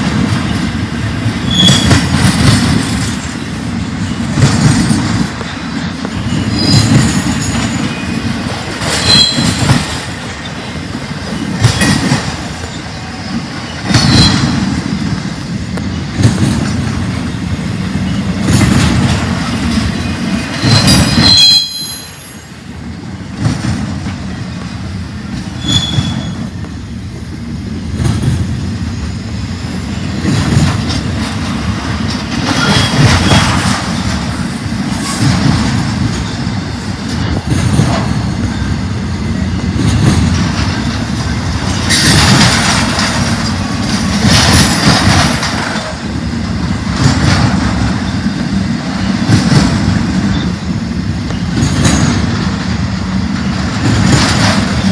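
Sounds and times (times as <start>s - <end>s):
rumble of train wheels on rail: 0.0s - 54.9s
high wheel squeals: 1.4s - 2.0s, 9.0s - 9.8s, 12.6s - 14.6s, 20.0s - 22.6s, 25.5s - 26.6s, 32.4s - 34.1s.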